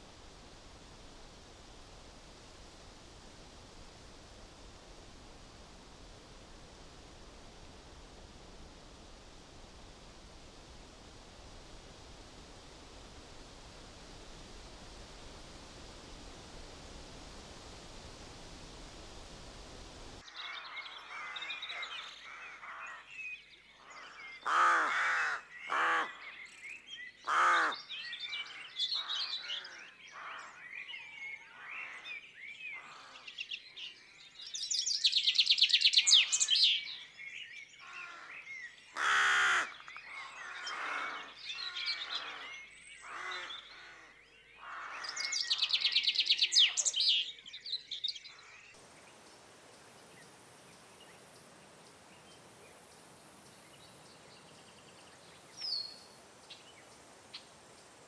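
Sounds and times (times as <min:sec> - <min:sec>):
harsh crow-like calls: 0:24.4 - 0:26.1, 0:27.3 - 0:27.8, 0:37.8 - 0:42.4, 0:43.0 - 0:45.4
songbird calls: 0:25.7 - 0:58.0
fast trilled bird song: 0:34.7 - 0:36.9, 0:45.3 - 0:47.4.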